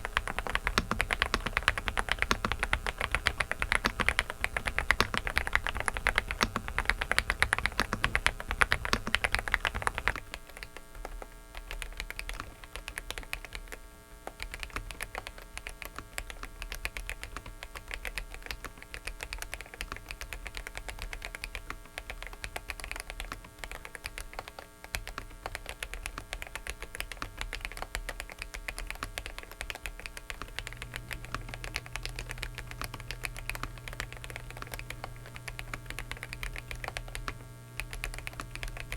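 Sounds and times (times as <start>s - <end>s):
electrical buzz from microphone: 0.0s - 38.9s
fast typing on mechanical keyboard: 0.0s - 38.9s
low hum: 30.3s - 38.9s.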